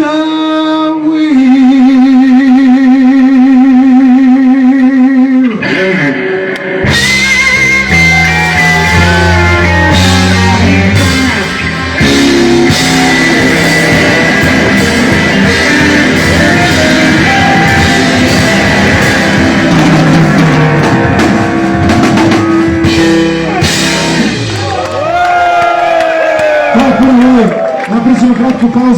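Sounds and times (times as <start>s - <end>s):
bass guitar: 0.0s - 28.9s
electric guitar: 1.7s - 28.7s
drum kit: 6.8s - 27.2s.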